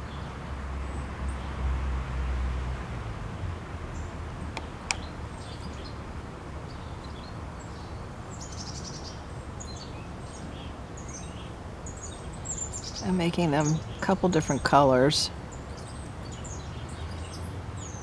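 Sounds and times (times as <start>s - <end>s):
low outdoor background hum: 0.0s - 18.0s
small birds chirping: 3.9s - 6.0s, 6.6s - 18.0s.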